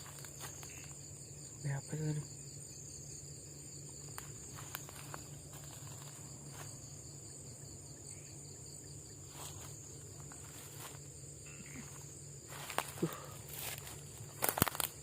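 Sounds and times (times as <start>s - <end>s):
insects trilling: 0.0s - 15.0s
faint clicks and rustles: 4.0s - 6.8s, 11.8s - 15.0s.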